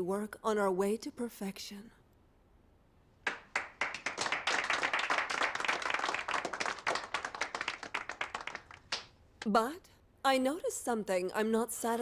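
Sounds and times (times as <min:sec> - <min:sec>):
people clapping: 0:03.2 - 0:09.2.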